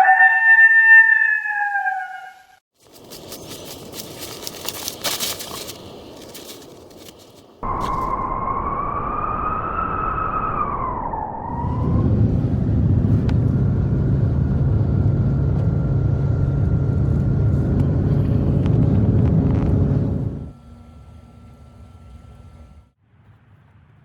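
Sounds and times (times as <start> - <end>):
wind buffeting rumble: 3.2 - 20.6
storm wind whistling: 5.6 - 20.6.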